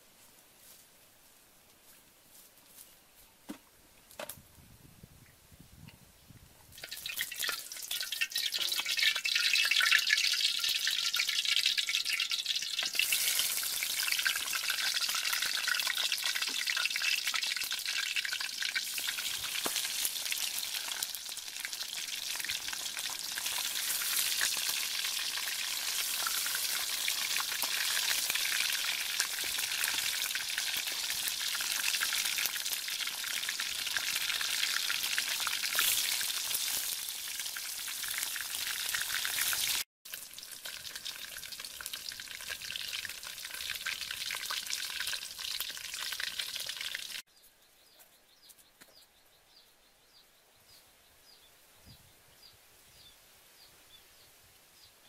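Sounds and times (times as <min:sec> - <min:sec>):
fish sizzling in hot oil: 0:06.8 - 0:47.2.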